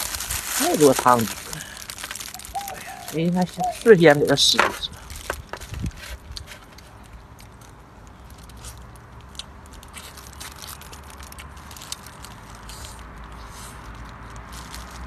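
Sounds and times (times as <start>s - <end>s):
low background hum: 0.0s - 15.0s
person chewing: 5.0s - 14.8s.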